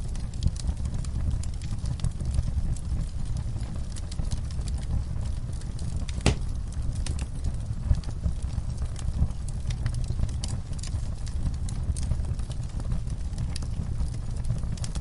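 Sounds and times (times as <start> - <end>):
wood fire crackling: 0.0 - 15.0
log popping: 6.1 - 6.7.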